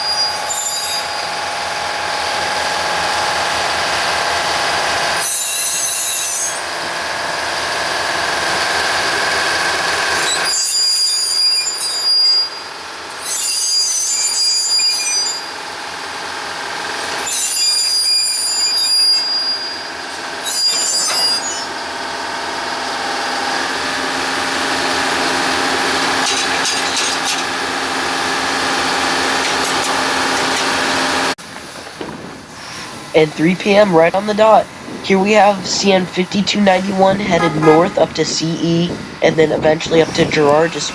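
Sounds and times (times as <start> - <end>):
locomotive engine running: 1.1 - 5.2, 21.7 - 40.9
metallic squealing: 5.2 - 6.7, 10.3 - 15.6.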